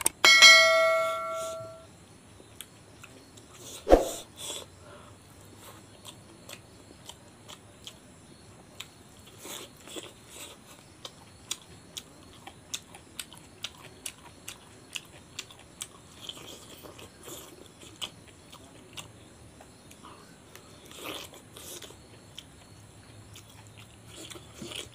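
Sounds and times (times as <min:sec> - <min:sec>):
person chewing with wet smacking: 0:08.8 - 0:24.9.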